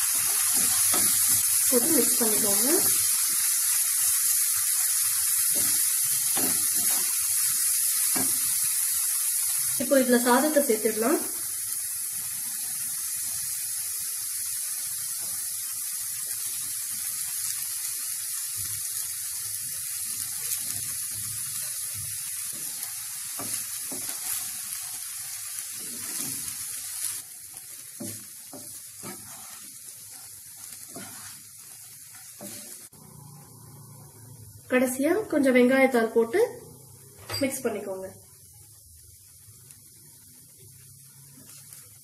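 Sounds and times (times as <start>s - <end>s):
rice sizzling in hot oil: 0.0s - 42.0s
wooden spatula stirring rice: 27.5s - 32.9s.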